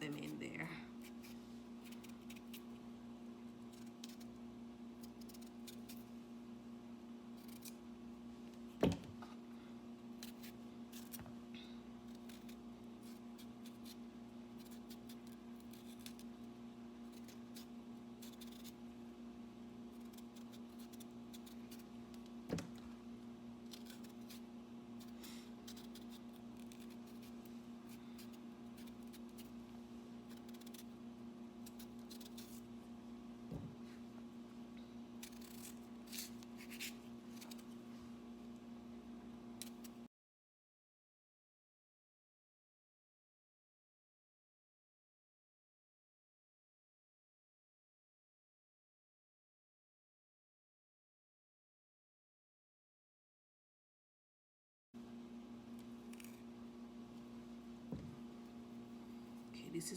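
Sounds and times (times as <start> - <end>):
blade scraping potato skin: 1.0 - 2.8, 3.5 - 6.2, 12.0 - 18.9, 19.8 - 22.4, 23.6 - 32.8, 35.1 - 37.8, 39.6 - 40.1.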